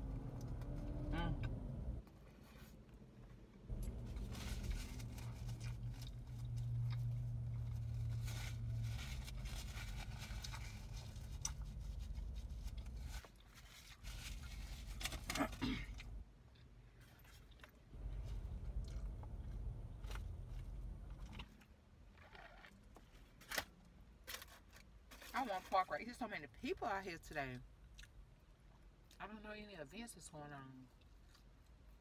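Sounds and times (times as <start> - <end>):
low steady hum: 0.0 - 32.0
burger being chewed: 0.1 - 23.1
paper wrapper crinkling: 3.7 - 15.6.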